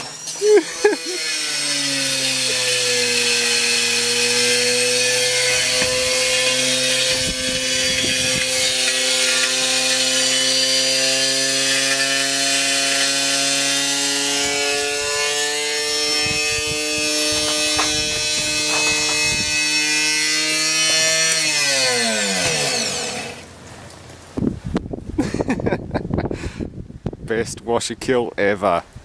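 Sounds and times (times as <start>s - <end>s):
washing machine motor whine: 0.0s - 21.4s
brick grinding and scraping: 14.4s - 23.4s.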